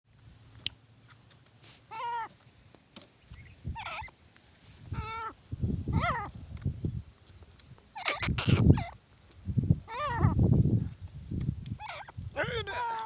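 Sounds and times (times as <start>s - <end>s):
francolin calling: 1.8s - 4.2s, 4.8s - 6.7s, 7.9s - 10.6s, 11.6s - 13.0s.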